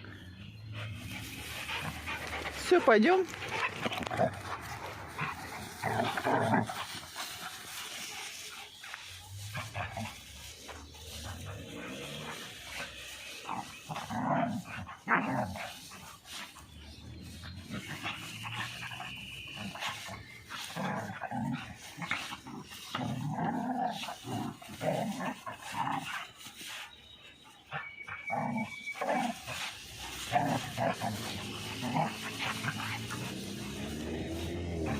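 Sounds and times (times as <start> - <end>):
dogs growling: 0.0 - 26.6, 27.7 - 34.9
dogs giving short vocal bursts: 1.0 - 8.8.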